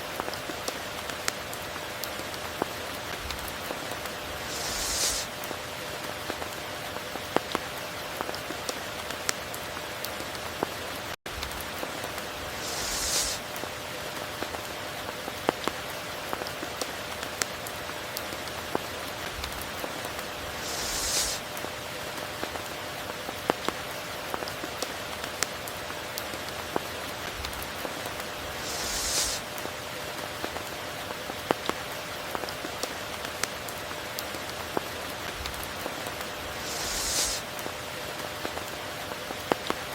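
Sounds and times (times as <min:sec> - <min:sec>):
steady rain falling: 0:00.0 - 0:39.9
short high hiss: 0:04.3 - 0:05.4, 0:12.5 - 0:13.5, 0:20.4 - 0:21.5, 0:28.4 - 0:29.5, 0:36.4 - 0:37.5.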